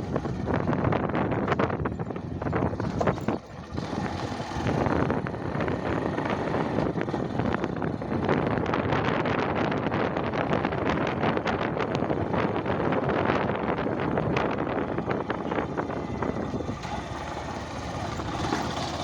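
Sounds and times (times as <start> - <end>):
vehicle running noise: 0.0 - 19.0
wind buffeting microphone: 0.0 - 19.0.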